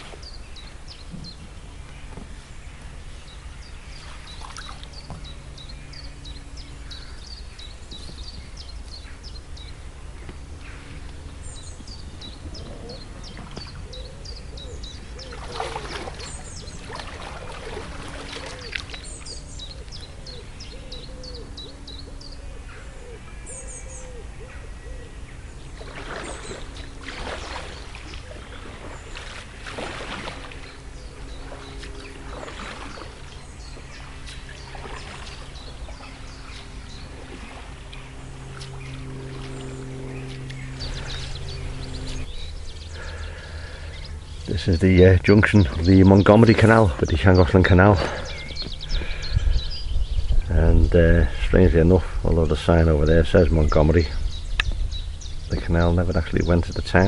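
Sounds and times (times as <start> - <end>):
kayak paddle strokes on water: 0.0 - 9.1, 14.8 - 20.1, 25.6 - 44.0
small birds chirping: 0.0 - 57.0
steady low hum: 0.0 - 57.0.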